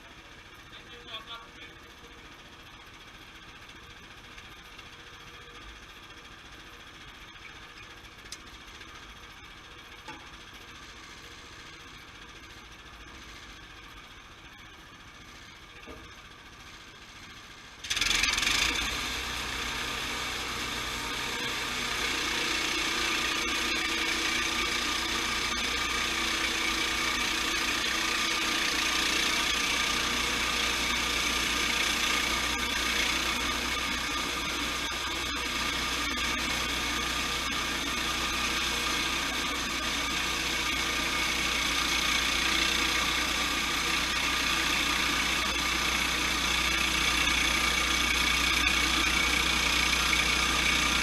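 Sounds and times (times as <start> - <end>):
sawmill blade sawing log: 17.9 - 51.0.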